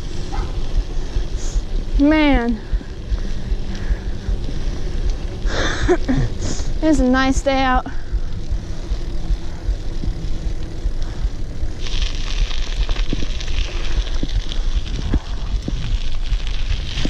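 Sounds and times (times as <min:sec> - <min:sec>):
wind buffeting microphone: 0:00.0 - 0:17.0
tyre hiss: 0:05.4 - 0:06.8.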